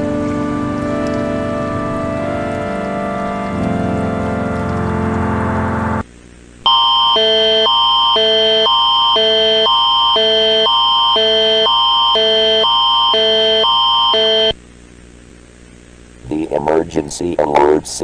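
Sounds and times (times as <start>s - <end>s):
emergency alert electronic chord: 0.0s - 6.0s, 6.7s - 14.5s
steady high tone: 0.0s - 6.0s.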